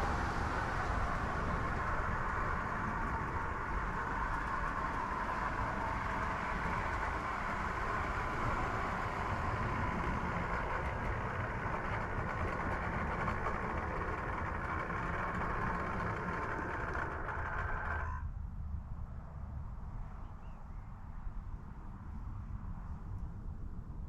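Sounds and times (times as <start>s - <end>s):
machine running with hum: 0.0s - 18.3s.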